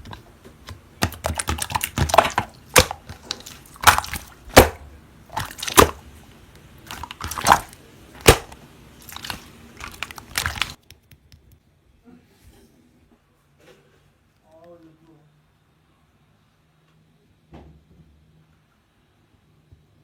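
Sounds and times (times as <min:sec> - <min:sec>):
slime squished by hand popping: 0:00.0 - 0:06.1, 0:06.8 - 0:11.6.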